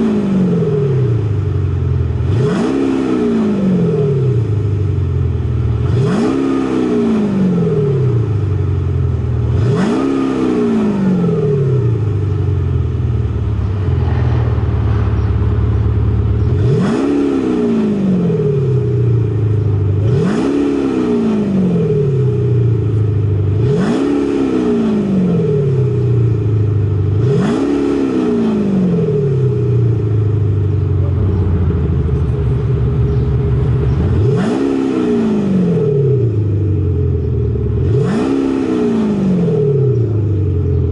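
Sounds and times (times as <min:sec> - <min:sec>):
car engine idling: 0:00.0 - 0:02.6, 0:03.7 - 0:06.2, 0:07.8 - 0:09.8, 0:11.0 - 0:20.3, 0:21.5 - 0:23.8, 0:29.1 - 0:38.1
car engine revving: 0:00.0 - 0:40.9.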